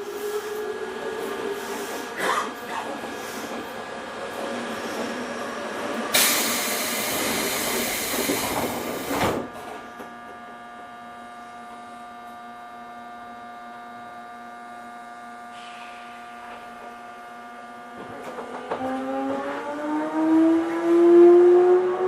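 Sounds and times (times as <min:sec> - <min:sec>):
air hiss burst: 0:06.1 - 0:08.4.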